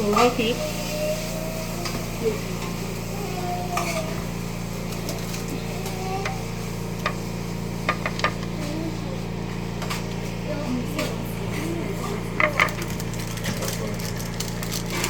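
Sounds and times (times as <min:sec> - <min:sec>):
kitchen utensils clicking: 0:12.3 - 0:15.0.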